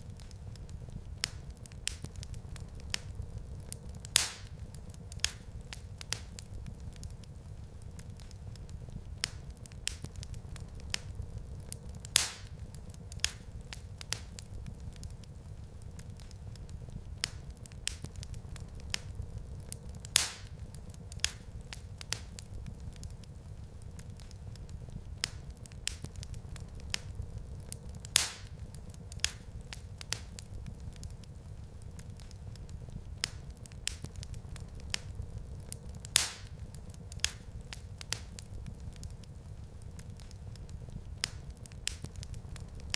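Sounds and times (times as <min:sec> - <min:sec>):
wood fire crackling: 0:00.0 - 0:42.9
loud sharp pop of fire: 0:03.7 - 0:07.1, 0:11.7 - 0:15.1, 0:19.7 - 0:23.1, 0:27.7 - 0:31.1, 0:35.7 - 0:39.1.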